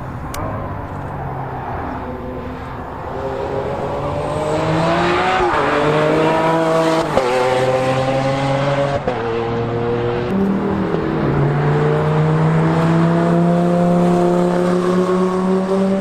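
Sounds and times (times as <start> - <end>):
sports car engine accelerating: 0.2 - 16.0.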